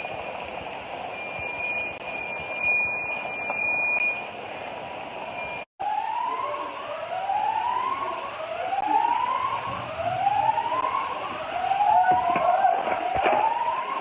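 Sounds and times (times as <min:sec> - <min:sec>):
siren wailing: 0:05.3 - 0:14.0.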